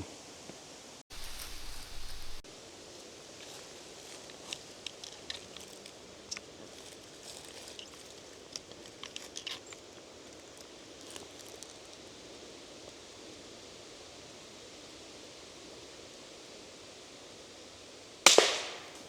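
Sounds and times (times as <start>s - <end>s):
wind hiss: 0.8s - 3.9s, 12.6s - 19.0s
footsteps in dry leaves: 1.1s - 8.8s.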